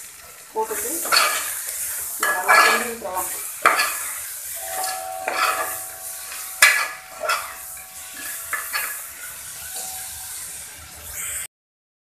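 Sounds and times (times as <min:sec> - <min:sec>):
sizzle of frying in oil: 0:00.0 - 0:11.5
metal spoon stirring and scraping: 0:00.7 - 0:10.2
spoon clinking against pot: 0:04.6 - 0:09.1.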